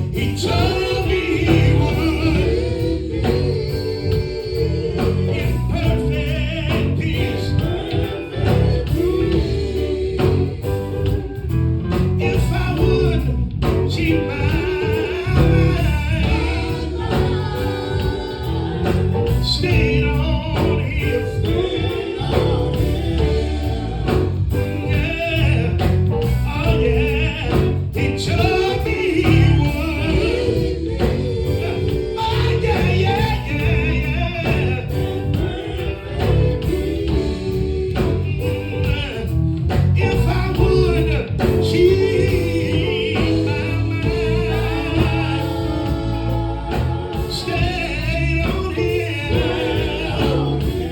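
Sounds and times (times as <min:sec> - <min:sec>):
gospel group singing: 0:00.0 - 0:50.9
instrumental backing with beat: 0:00.0 - 0:50.9.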